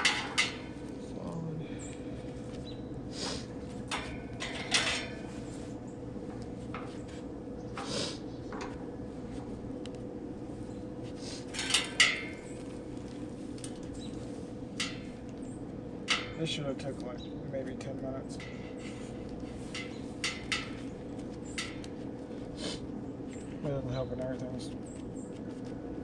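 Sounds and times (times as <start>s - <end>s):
metal clanks and rattles: 0.0s - 0.8s, 3.8s - 5.3s, 11.5s - 12.6s, 16.0s - 16.6s, 18.3s - 20.9s
steady low hum: 0.0s - 26.0s.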